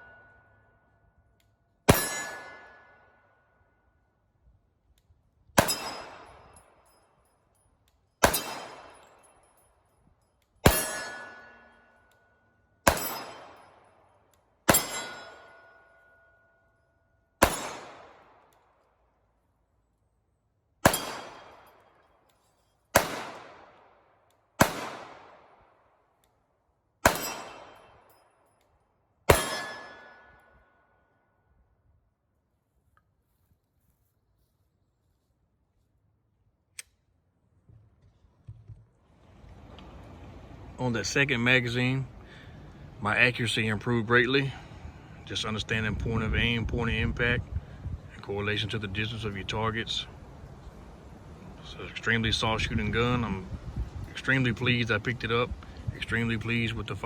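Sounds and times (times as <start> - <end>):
pistol shots: 1.9 - 3.0, 5.6 - 6.6, 8.2 - 9.3, 10.6 - 11.8, 12.8 - 13.9, 14.7 - 15.6, 17.4 - 18.5, 20.8 - 21.8, 22.9 - 24.0, 24.6 - 25.7, 27.0 - 28.2, 29.3 - 30.5
steel targets ringing: 1.9 - 3.2, 5.6 - 7.0, 8.2 - 9.7, 10.6 - 13.9, 14.7 - 16.6, 20.8 - 21.8, 27.1 - 28.2, 29.3 - 30.7.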